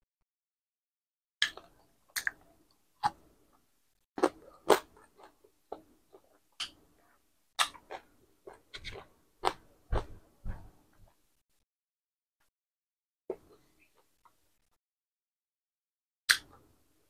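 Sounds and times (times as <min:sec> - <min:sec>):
person chewing crispy food: 0:04.2 - 0:06.4.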